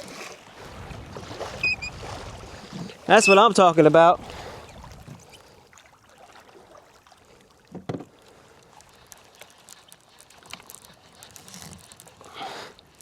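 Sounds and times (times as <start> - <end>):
knocks and clicks on kayak: 7.7 - 8.1.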